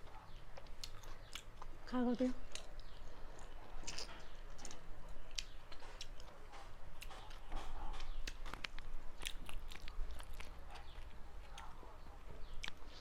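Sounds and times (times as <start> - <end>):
chewing and mouth smacks: 0.0 - 1.8, 2.4 - 13.0.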